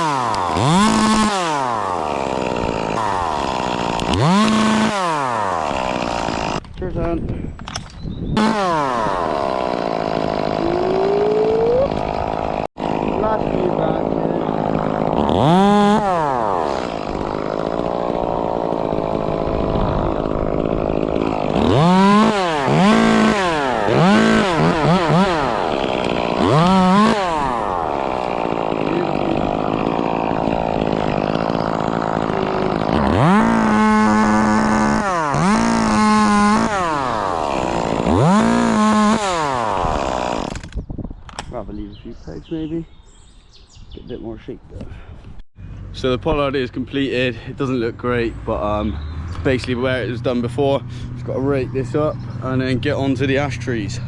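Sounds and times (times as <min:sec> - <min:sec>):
chainsaw revving: 0:00.0 - 0:06.6, 0:08.4 - 0:40.8.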